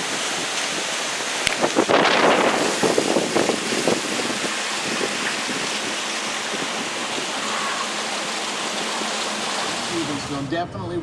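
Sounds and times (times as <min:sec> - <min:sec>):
wind rushing: 0:00.0 - 0:07.5
wind buffeting microphone: 0:00.0 - 0:08.8.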